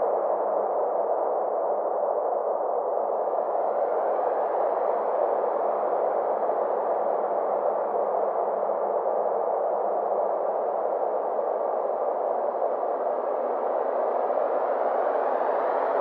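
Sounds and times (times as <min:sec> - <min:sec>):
synthetic filtered noise ambience: 0:00.0 - 0:16.0.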